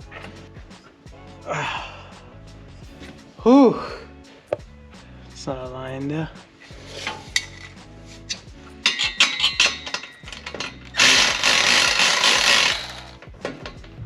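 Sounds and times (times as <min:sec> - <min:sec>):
faint background music: 0:00.0 - 0:14.0
exhaust pipes clanking and ringing: 0:08.8 - 0:11.0
metallic clinks: 0:08.8 - 0:11.0.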